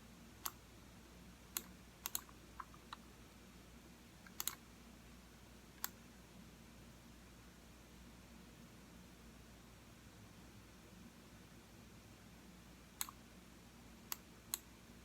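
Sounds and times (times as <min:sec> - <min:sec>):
computer mouse clicking: 0:01.5 - 0:03.0, 0:04.2 - 0:04.6, 0:13.0 - 0:13.2, 0:14.1 - 0:14.7.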